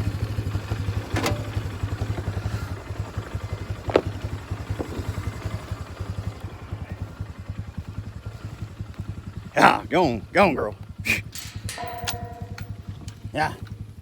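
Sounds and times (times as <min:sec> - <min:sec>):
atv engine idling: 0:00.0 - 0:14.0.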